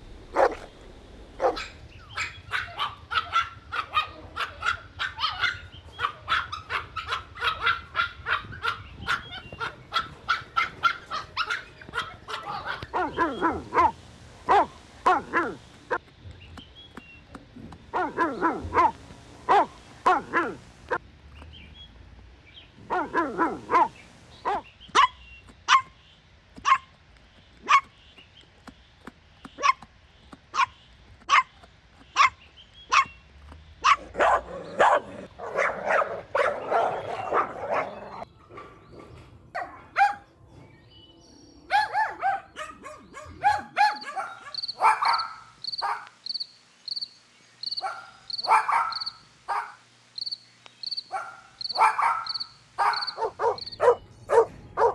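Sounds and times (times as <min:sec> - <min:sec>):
dog barking: 0:00.3 - 0:00.7, 0:01.4 - 0:16.0, 0:17.9 - 0:21.0, 0:22.8 - 0:26.0, 0:26.6 - 0:26.9, 0:27.6 - 0:28.0, 0:29.6 - 0:29.9, 0:30.5 - 0:33.2, 0:33.8 - 0:40.3, 0:41.7 - 0:46.2, 0:47.7 - 0:49.8, 0:51.0 - 0:54.9.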